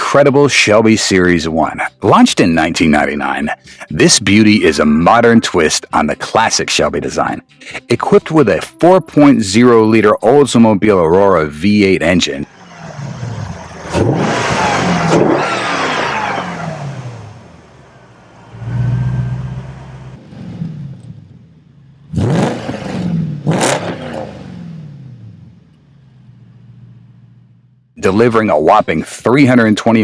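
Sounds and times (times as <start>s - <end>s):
car engine revving: 12.4s - 27.9s
low steady engine note: 12.5s - 22.2s, 24.4s - 27.8s.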